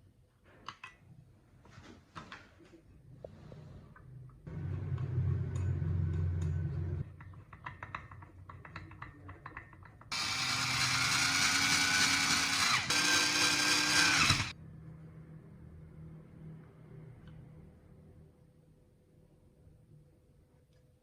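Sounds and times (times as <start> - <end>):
small clicks and taps: 5.6 - 10.1
small power tool running: 10.1 - 14.5.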